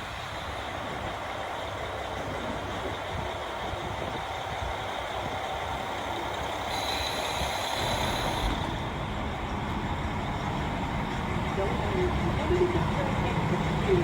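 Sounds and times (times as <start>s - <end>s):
diesel railcar engine rumbling: 0.0s - 14.0s
hiss: 6.7s - 8.8s.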